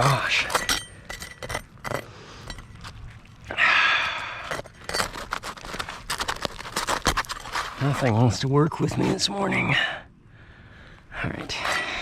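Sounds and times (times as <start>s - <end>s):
light clicks and scrapes: 4.3s - 8.3s.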